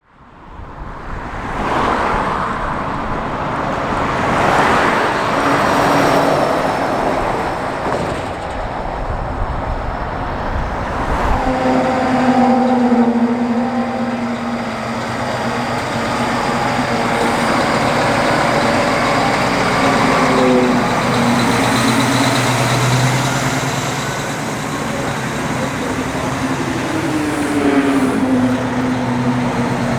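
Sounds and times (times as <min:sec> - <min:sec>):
diesel trucks passing: 0:00.1 - 0:29.9
steady engine drone: 0:11.0 - 0:29.9.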